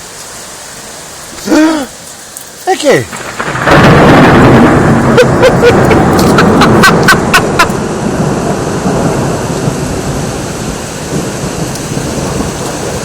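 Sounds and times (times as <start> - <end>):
heavy rain pouring: 0.0 - 13.0
rumble of thunder: 3.1 - 13.0.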